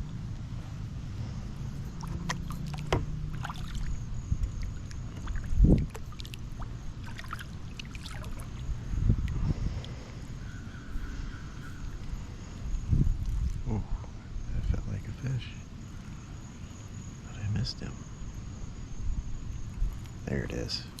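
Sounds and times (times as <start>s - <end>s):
dull thump: 2.1s - 3.2s.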